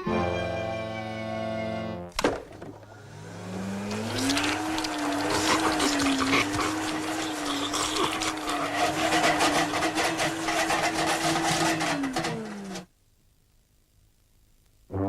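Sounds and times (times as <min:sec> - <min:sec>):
vacuum cleaner motor humming: 0:02.7 - 0:12.9
rattling and clattering: 0:04.6 - 0:12.9.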